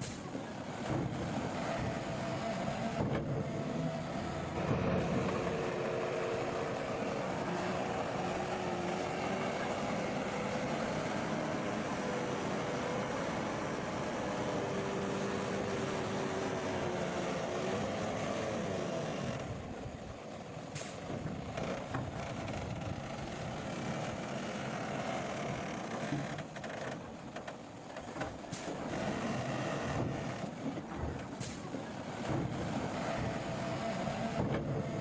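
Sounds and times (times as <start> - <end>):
bulldozer diesel engine running: 0.0 - 35.0.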